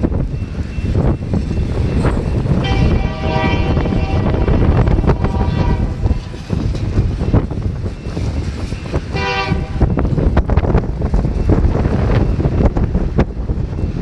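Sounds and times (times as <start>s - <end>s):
train rumbling past: 0.0s - 14.0s
wind on microphone: 0.0s - 14.0s
train air horn blasts: 2.6s - 6.3s, 9.1s - 9.9s.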